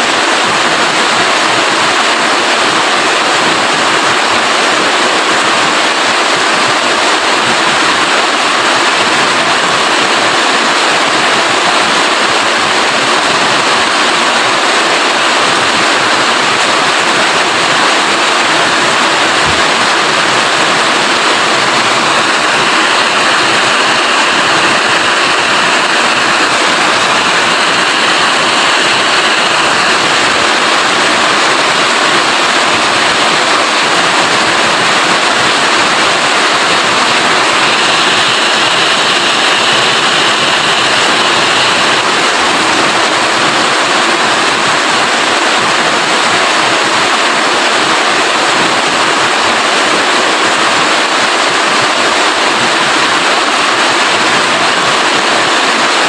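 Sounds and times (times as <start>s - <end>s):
loud rain falling: 0.0s - 56.0s.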